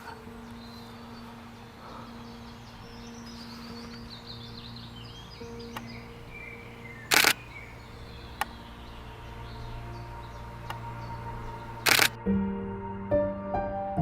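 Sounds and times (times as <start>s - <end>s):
faint birdsong: 0.0s - 12.2s
soft piano-like music: 0.0s - 14.0s
camera shutter bursts: 7.1s - 7.5s, 11.8s - 12.2s.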